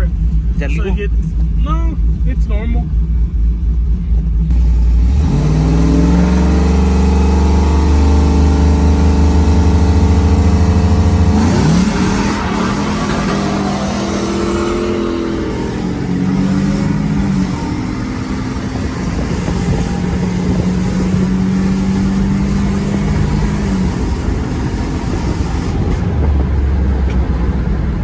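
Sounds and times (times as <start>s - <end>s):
car engine revving: 0.0s - 28.0s
deep engine rumble: 0.0s - 28.0s.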